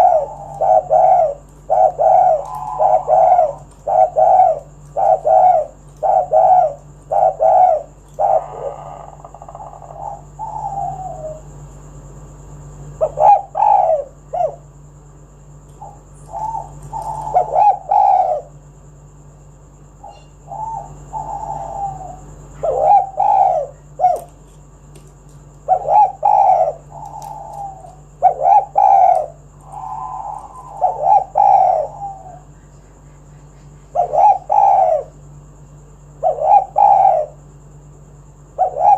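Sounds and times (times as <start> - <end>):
dove cooing: 0.0 - 14.9, 15.8 - 18.6, 20.0 - 35.4, 36.0 - 37.6, 38.4 - 38.9.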